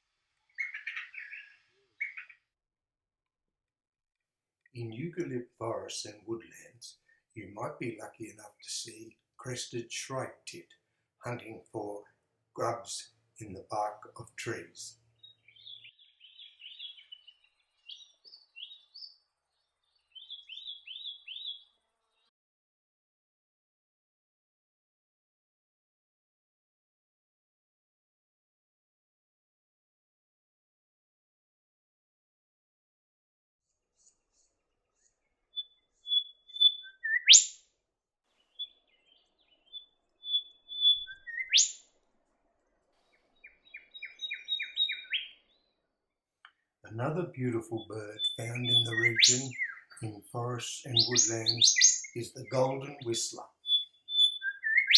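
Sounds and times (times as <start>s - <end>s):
songbird singing: 0.5s - 2.4s, 12.6s - 22.3s, 34.0s - 37.6s, 38.4s - 41.8s, 43.2s - 45.8s, 46.4s - 54.9s
bird whistled calls: 36.1s - 37.5s, 39.7s - 41.8s, 43.7s - 45.4s, 51.0s - 52.2s, 53.6s - 54.9s.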